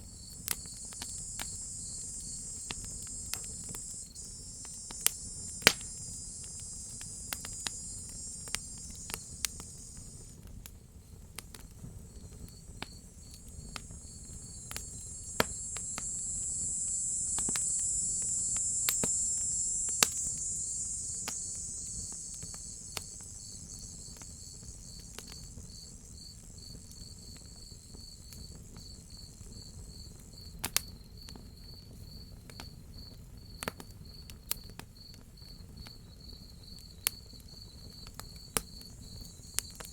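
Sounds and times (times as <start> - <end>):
high insect buzz: 0.0 - 10.5, 11.7 - 30.0, 38.8 - 39.9
crickets chirping: 0.0 - 32.2, 35.0 - 39.9
wood fire crackling: 0.1 - 25.6.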